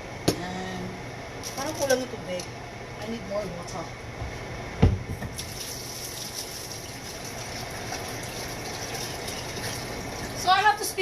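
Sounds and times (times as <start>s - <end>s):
water running from tap: 5.3s - 10.5s.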